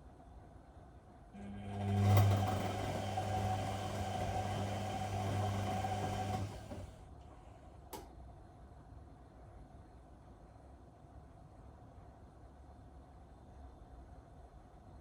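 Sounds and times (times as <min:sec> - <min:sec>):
washing machine motor humming: 0:01.4 - 0:07.1.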